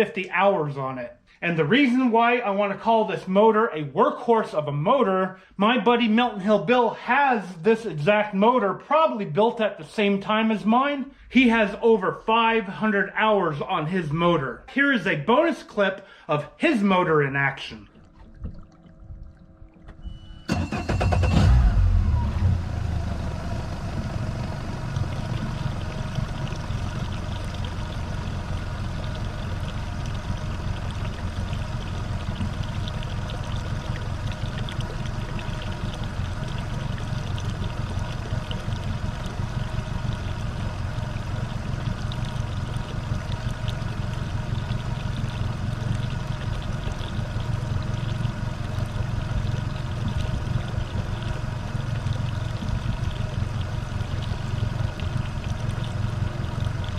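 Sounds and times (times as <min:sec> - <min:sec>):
outboard motor starting and running: 0:16.9 - 0:56.9.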